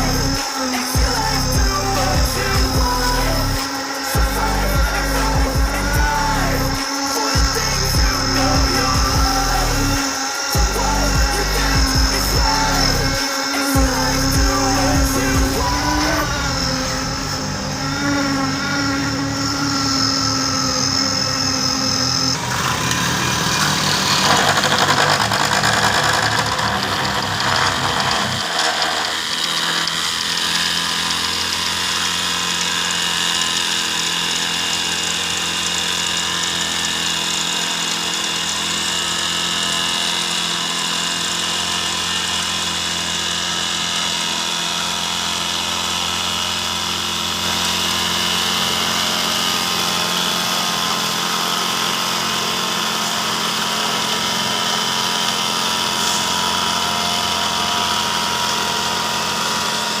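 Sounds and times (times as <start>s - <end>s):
low engine drone: 0.0s - 42.5s
high machinery whine: 0.0s - 60.0s.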